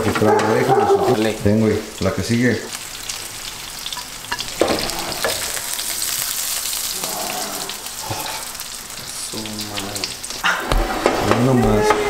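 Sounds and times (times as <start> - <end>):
food sizzling in butter: 0.0 - 12.0
utensils knocking against pan: 10.5 - 12.0.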